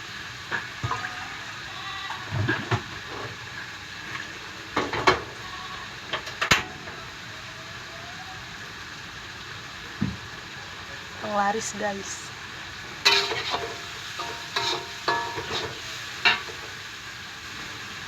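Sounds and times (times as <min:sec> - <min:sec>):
anchovies sizzling in oil: 0:00.0 - 0:18.0
utensils clanking against metal: 0:13.1 - 0:16.7.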